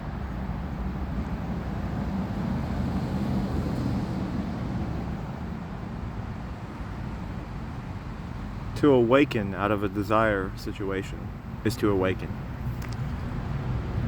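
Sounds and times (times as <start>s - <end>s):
road traffic with low hum: 0.0s - 14.0s
vehicle passing: 0.2s - 5.6s.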